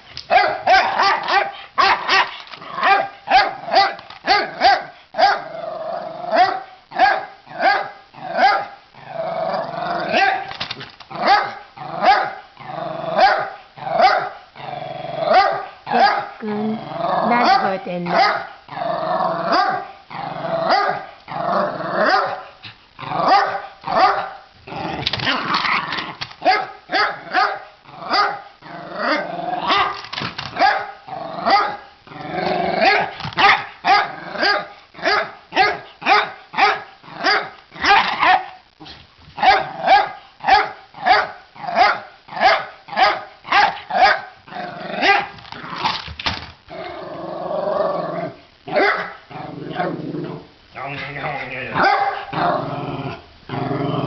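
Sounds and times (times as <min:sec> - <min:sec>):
dog barking: 0:00.3 - 0:05.5, 0:06.3 - 0:08.8, 0:10.1 - 0:10.5, 0:11.2 - 0:12.5, 0:13.2 - 0:14.4, 0:15.3 - 0:16.4, 0:17.3 - 0:18.6, 0:19.5 - 0:19.9, 0:20.7 - 0:21.1, 0:22.0 - 0:22.5, 0:23.2 - 0:24.4, 0:26.4 - 0:28.5, 0:30.6 - 0:31.8, 0:32.8 - 0:38.6, 0:39.4 - 0:44.4, 0:45.0 - 0:45.3, 0:48.7 - 0:49.2, 0:51.8 - 0:52.3.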